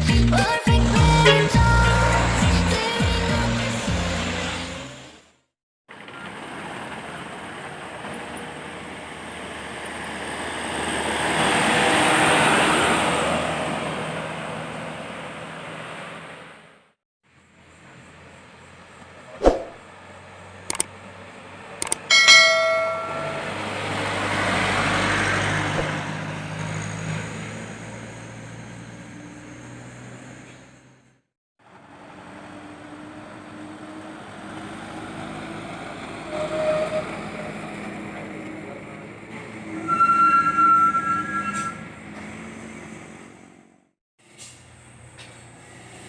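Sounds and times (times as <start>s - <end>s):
heavy vehicles passing: 0.2s - 5.2s, 5.9s - 39.8s, 40.4s - 46.0s
vehicle horn blare: 1.1s - 2.0s, 39.8s - 41.8s.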